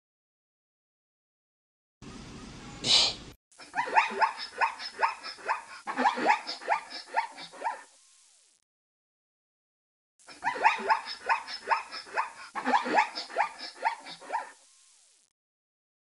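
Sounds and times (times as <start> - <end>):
short hiss: 2.8 - 3.4.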